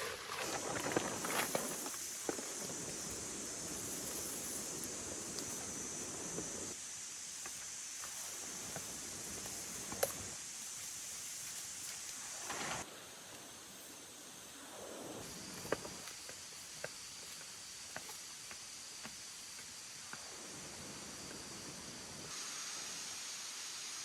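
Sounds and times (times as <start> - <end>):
rustling through leaves: 0.0 - 23.1
high-pitched insect drone: 0.1 - 12.8.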